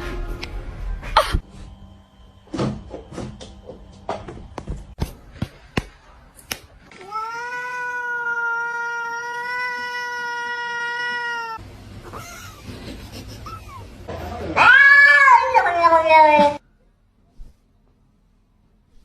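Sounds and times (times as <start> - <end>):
cat yowling: 7.0 - 11.6, 14.5 - 16.6.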